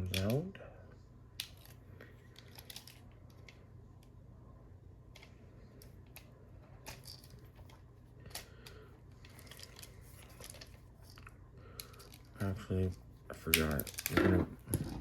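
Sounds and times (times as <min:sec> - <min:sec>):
steady low hum: 0:00.0 - 0:15.0
plastic toy parts clicking: 0:02.4 - 0:03.6, 0:13.4 - 0:14.2.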